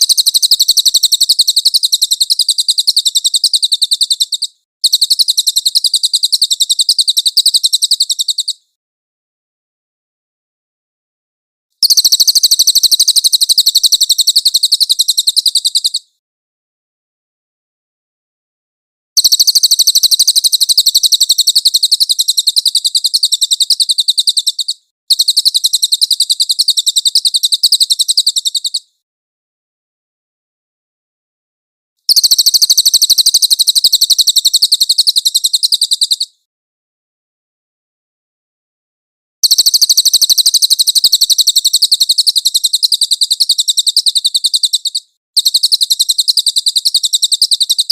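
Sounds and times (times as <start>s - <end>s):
songbird trilling: 0.0s - 8.6s, 11.8s - 16.0s, 19.2s - 28.8s, 32.1s - 36.3s, 39.4s - 47.9s.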